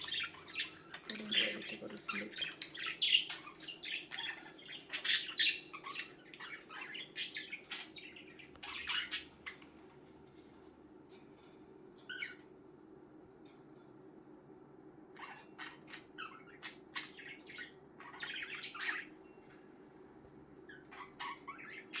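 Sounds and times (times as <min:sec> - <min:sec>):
budgerigars chirping: 0:00.0 - 0:09.8, 0:12.1 - 0:12.5, 0:15.2 - 0:19.2, 0:20.7 - 0:22.0.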